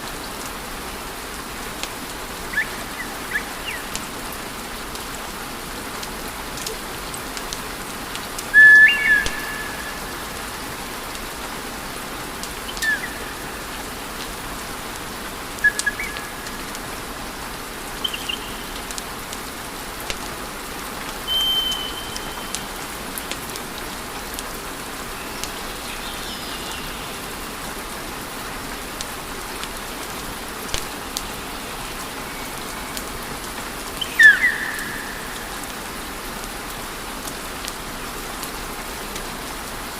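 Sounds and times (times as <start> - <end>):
steady hiss: 0.0 - 39.9
short high whistles: 21.3 - 22.6.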